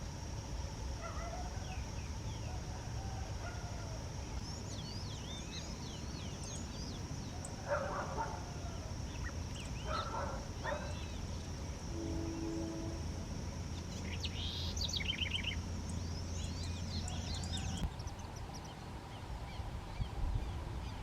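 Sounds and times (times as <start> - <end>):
dog barking: 1.0 - 1.7, 7.6 - 8.5, 9.8 - 11.0
birds chirping and whistling: 13.9 - 18.2.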